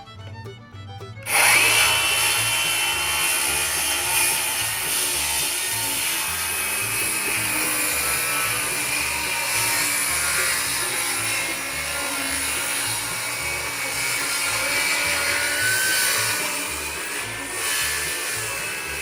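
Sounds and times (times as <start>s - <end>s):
power saw cutting wood: 0.0s - 19.0s.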